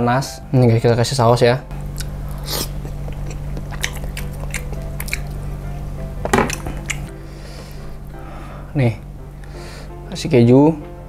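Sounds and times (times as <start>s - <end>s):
background music: 0.0s - 2.2s, 3.7s - 11.0s
person chewing food: 1.9s - 5.6s, 6.4s - 8.1s.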